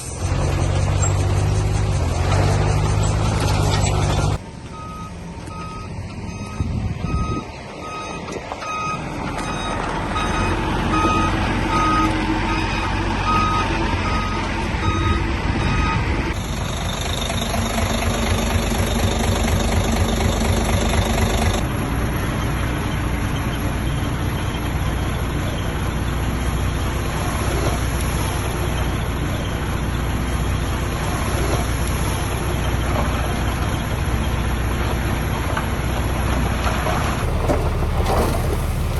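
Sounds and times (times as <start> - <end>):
diesel engine running: 0.0 - 38.9
reversing alarm beeping: 3.8 - 21.7.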